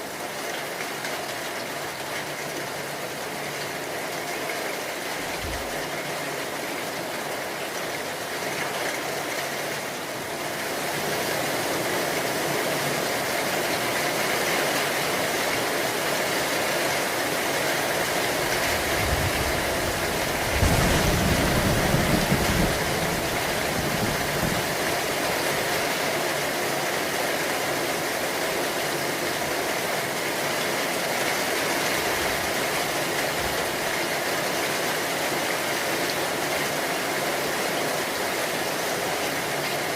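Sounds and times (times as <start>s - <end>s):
steady rain falling: 0.0s - 39.9s
thunder rumbling: 18.7s - 25.1s.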